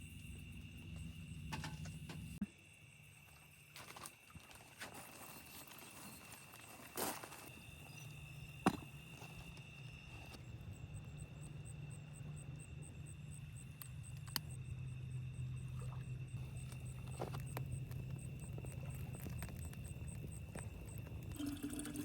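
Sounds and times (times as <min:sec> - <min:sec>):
crickets chirping: 0:00.0 - 0:22.0
low steady hum: 0:10.5 - 0:22.0.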